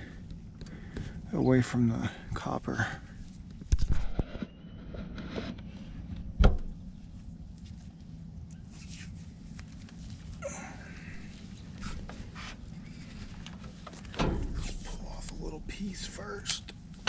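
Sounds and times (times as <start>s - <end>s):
steady low hum: 0.0s - 17.0s
tools rustling and scraping: 11.5s - 16.7s.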